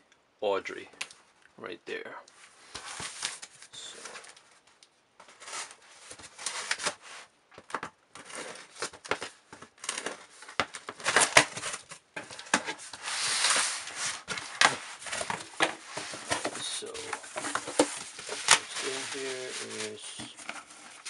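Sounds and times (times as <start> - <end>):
packaging rustling and crackling: 7.6 - 21.0.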